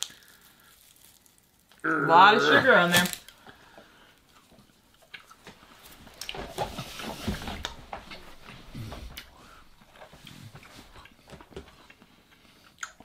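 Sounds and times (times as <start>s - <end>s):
chewing gummy candy: 0.0s - 3.4s, 4.1s - 5.5s.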